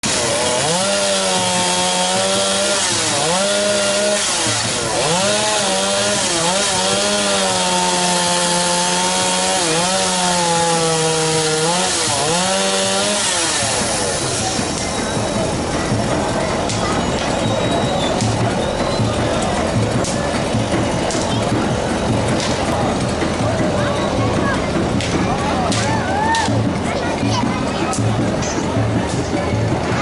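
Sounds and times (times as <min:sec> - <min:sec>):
chainsaw revving: 0:00.0 - 0:25.8.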